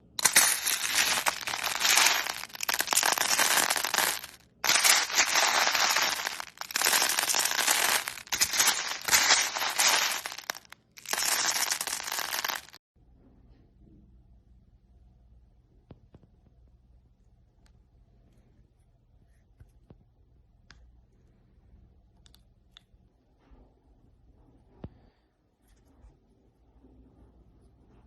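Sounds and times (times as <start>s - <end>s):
dense crackling and crunching: 0.2s - 12.8s.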